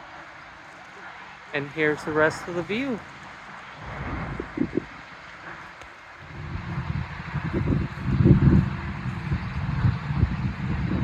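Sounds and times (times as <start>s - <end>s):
wind buffeting microphone: 3.6s - 11.0s.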